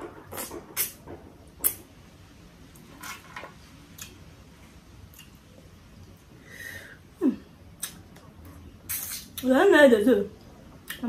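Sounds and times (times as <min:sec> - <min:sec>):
lip smacks: 0:00.3 - 0:01.0, 0:07.8 - 0:09.5
soft chewing: 0:05.0 - 0:06.3.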